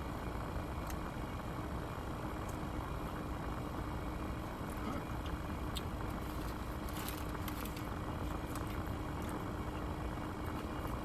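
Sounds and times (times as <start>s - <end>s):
constant hum: 0.0s - 11.0s
low background rumble: 0.0s - 11.0s
chewing and food handling clicks: 4.7s - 5.9s, 7.4s - 9.4s.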